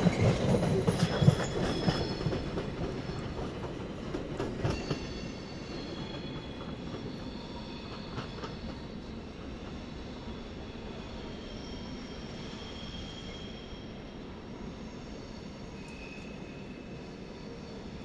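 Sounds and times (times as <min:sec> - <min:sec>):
train wheels clacking over rail joints: 0:00.0 - 0:07.2
high wheel squeal: 0:09.9 - 0:18.0.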